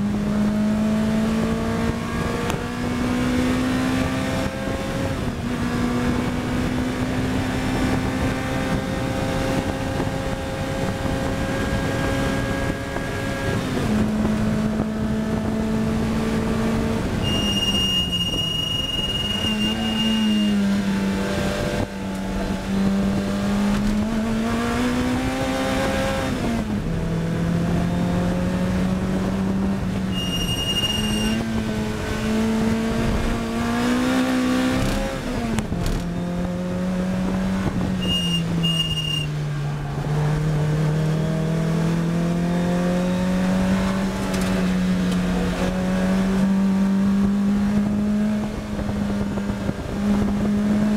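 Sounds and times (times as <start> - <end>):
race car engine revving: 0.0 - 50.9
thin high squeal: 17.2 - 20.7, 30.1 - 31.4.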